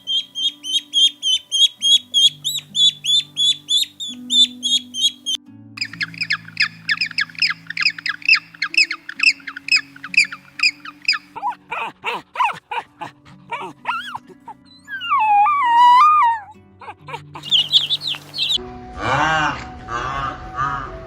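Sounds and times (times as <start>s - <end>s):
bird-like animal calls: 0.0s - 12.6s, 17.1s - 18.6s
soft background music: 0.0s - 21.0s.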